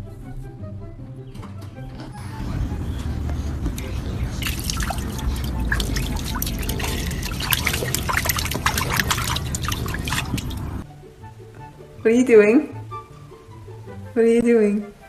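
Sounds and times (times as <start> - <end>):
low rumble: 2.4 - 10.8
water dripping and splashing: 2.4 - 10.8.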